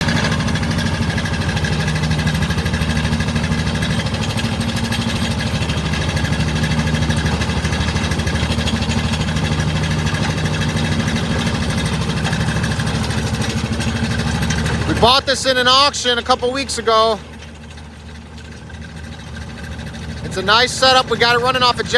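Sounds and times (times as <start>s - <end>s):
engine running steadily: 0.0s - 21.9s.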